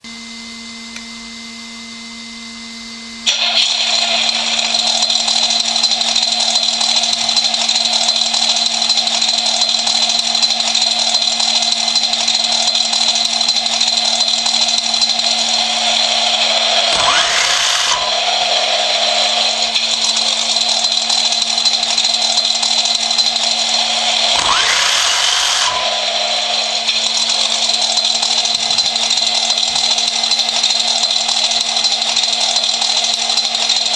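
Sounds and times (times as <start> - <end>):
car engine starting and revving: 15.8 - 19.8, 24.0 - 27.0.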